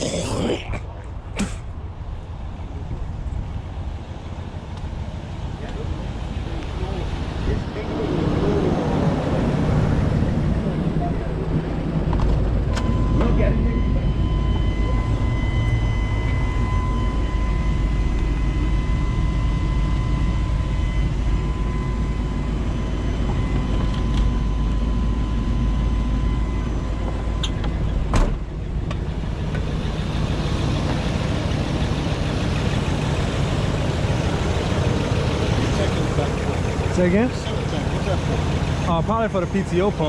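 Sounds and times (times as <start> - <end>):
truck engine rumbling: 0.0 - 40.0
faint steady whine: 12.6 - 40.0.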